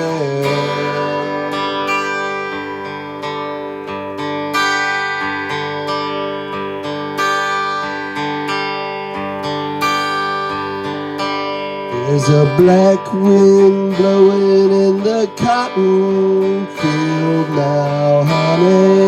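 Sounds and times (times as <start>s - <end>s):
acoustic guitar playing: 0.0s - 19.0s.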